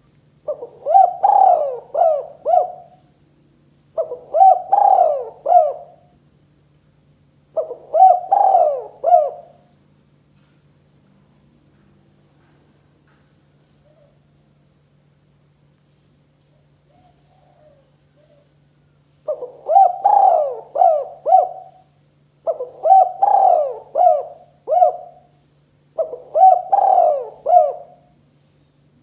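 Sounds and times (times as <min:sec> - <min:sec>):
dove cooing: 0:00.4 - 0:03.1, 0:03.9 - 0:06.1, 0:07.5 - 0:09.7, 0:16.9 - 0:18.5, 0:19.2 - 0:25.4, 0:26.0 - 0:28.2.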